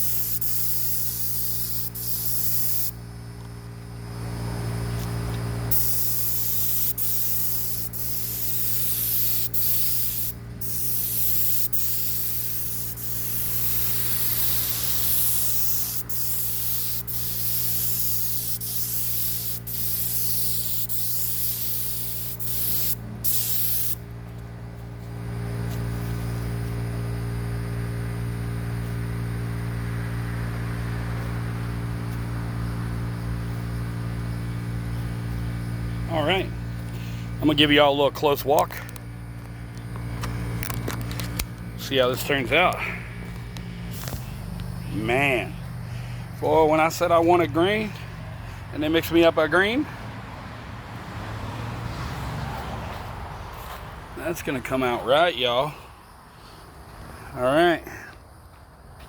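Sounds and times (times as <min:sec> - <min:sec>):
paint spray gun hissing: 0:00.0 - 0:03.0, 0:05.7 - 0:24.1, 0:40.1 - 0:48.1
steady motor hum: 0:00.0 - 0:51.1.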